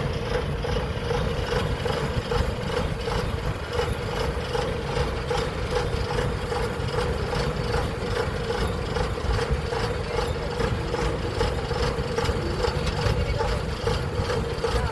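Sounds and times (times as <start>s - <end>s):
combine harvester engine whining: 0.0s - 14.9s
faint machinery ticking: 0.0s - 14.9s.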